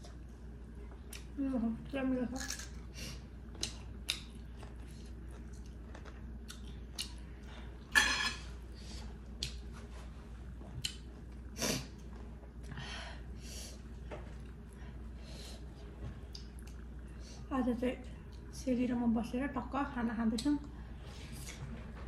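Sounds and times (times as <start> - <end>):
chewing and lip smacks: 0.0 - 1.4, 3.5 - 7.7, 9.2 - 9.6, 10.7 - 12.2, 16.3 - 17.1.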